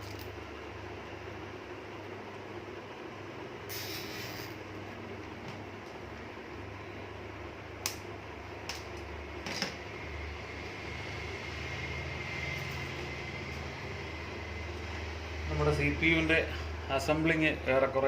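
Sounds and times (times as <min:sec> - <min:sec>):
low background hum: 0:00.0 - 0:18.0
faint thin whine: 0:09.4 - 0:18.0.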